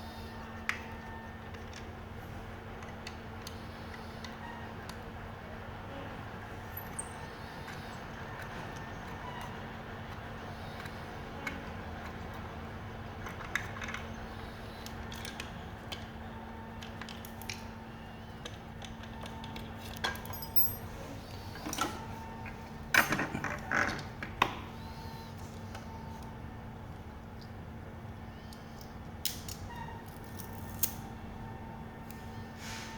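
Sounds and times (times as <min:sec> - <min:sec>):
metal parts and tools clinking: 0:19.9 - 0:21.0, 0:22.9 - 0:24.0.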